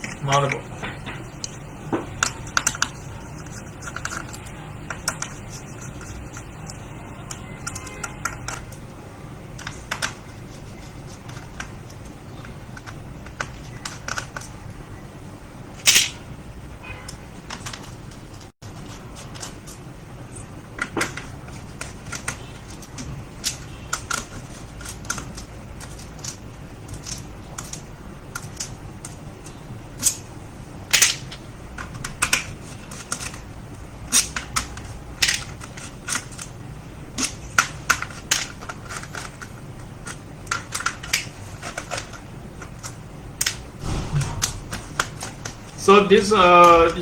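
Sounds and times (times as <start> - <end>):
laptop parts clicking and snapping: 1.4 - 8.8, 15.9 - 16.2, 20.8 - 29.2, 30.9 - 33.4, 34.1 - 36.5, 37.2 - 43.6.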